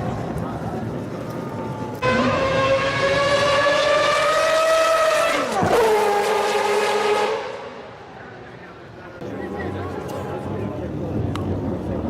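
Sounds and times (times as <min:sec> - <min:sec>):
race car engine revving: 0:02.0 - 0:07.8.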